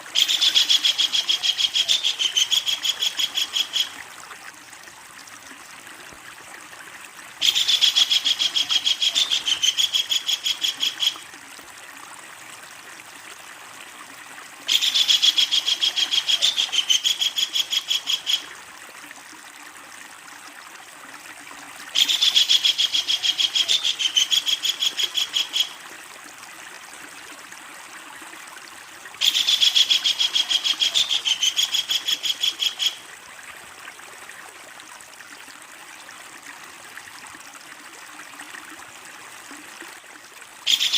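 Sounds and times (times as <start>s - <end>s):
kingfisher rattling call: 0.2s - 3.9s, 7.4s - 11.2s, 29.2s - 33.0s, 40.7s - 40.9s.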